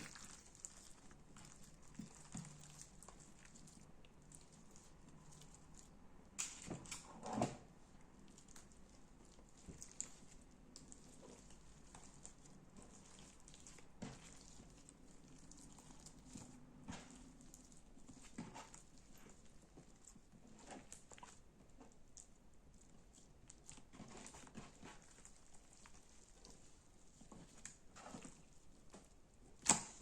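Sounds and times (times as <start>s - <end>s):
hands working sticky slime: 0.0s - 30.0s.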